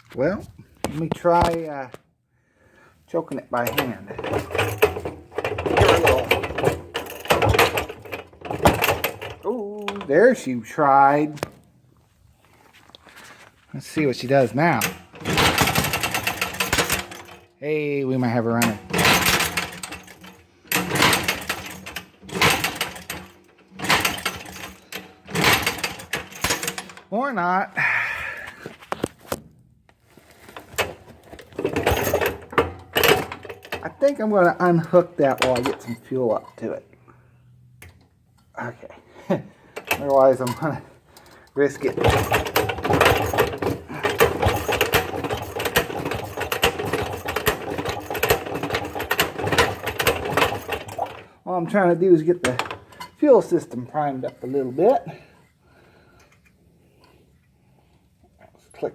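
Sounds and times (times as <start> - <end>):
engine being turned over: 3.5 - 10.2, 14.1 - 17.5, 18.6 - 27.0, 30.4 - 36.0, 41.6 - 51.3.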